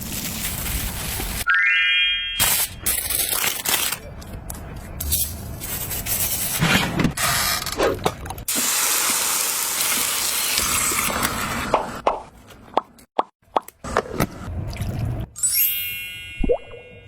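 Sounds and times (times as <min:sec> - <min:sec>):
pork sizzling: 0:08.5 - 0:11.7.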